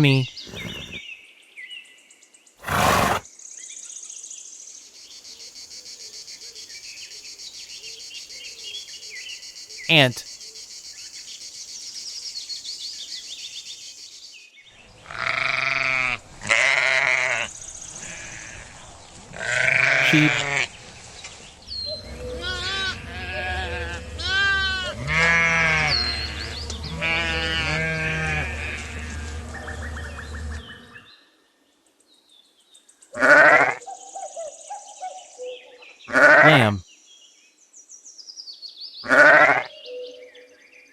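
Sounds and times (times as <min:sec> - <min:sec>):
sheep bleating: 0:15.0 - 0:18.7, 0:19.4 - 0:20.7, 0:22.4 - 0:29.3, 0:33.2 - 0:33.8, 0:36.1 - 0:36.8, 0:39.1 - 0:39.7.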